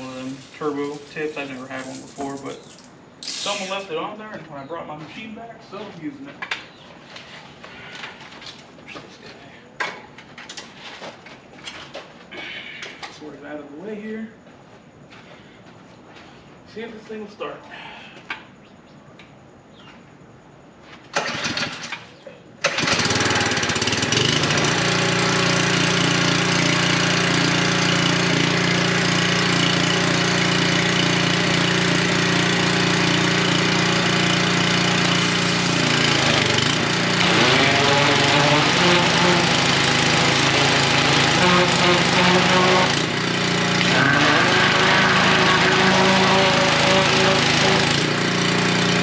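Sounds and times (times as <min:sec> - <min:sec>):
small engine running: 0:00.0 - 0:03.6, 0:22.7 - 0:49.0
engine pull-start cranking: 0:21.1 - 0:22.0, 0:22.6 - 0:25.0.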